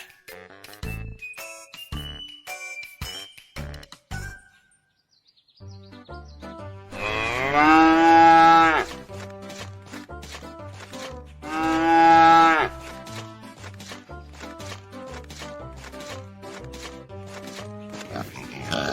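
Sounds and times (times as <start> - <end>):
cow mooing: 6.9 - 9.0, 11.4 - 12.8.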